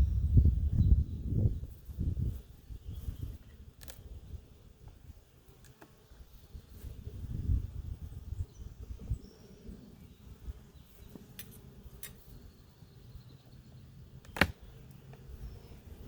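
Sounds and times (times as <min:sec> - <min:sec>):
low hum of bees: 0:00.0 - 0:16.0
faint bird chirps: 0:12.0 - 0:16.0.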